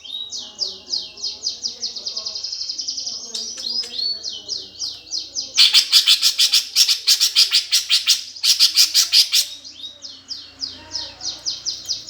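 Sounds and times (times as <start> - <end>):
sparrows chirping harshly: 0.0 - 12.0.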